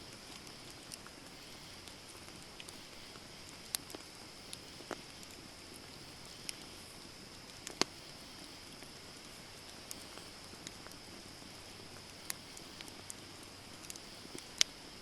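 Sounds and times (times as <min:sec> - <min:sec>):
wood campfire crackling: 0:00.0 - 0:15.0.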